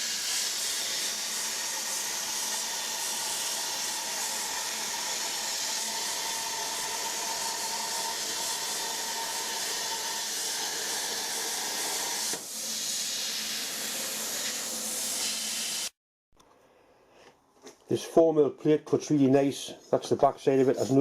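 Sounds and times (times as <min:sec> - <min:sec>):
plasma cutter torch hissing: 0:00.0 - 0:16.0.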